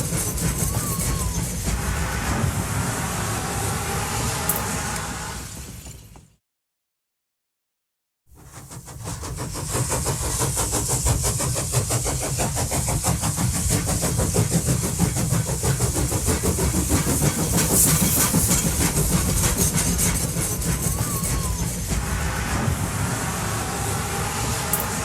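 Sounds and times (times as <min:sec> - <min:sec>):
train running: 0:00.0 - 0:06.4, 0:08.3 - 0:25.0.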